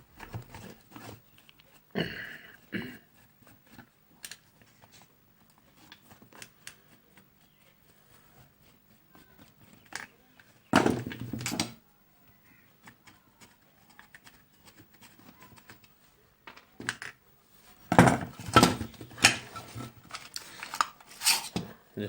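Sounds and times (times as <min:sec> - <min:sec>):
plastic case and circuit board clattering: 0:10.8 - 0:11.8, 0:17.9 - 0:21.7.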